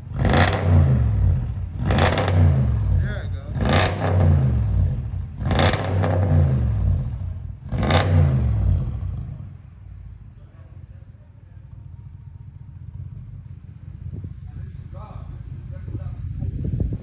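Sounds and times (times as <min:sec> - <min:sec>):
car engine revving: 0:00.0 - 0:09.7
car engine idling: 0:00.0 - 0:16.9.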